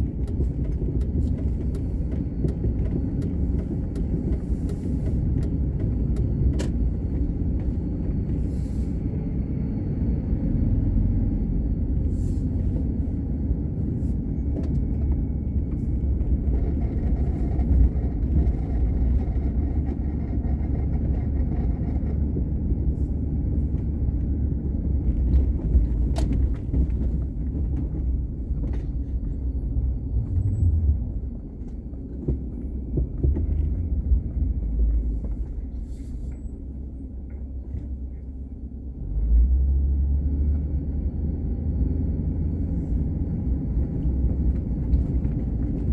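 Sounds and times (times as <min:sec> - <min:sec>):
car engine and tyres rumbling: 0:00.0 - 0:45.9.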